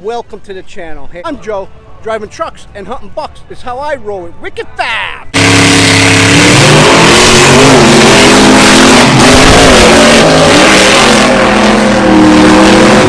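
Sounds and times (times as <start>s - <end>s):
truck engine revving: 5.4s - 13.0s.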